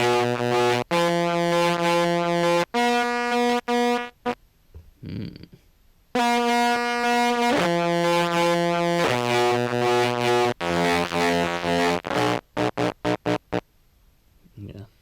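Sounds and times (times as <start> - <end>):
distorted contrabass clarinet: 0.0 - 4.4, 6.2 - 13.6.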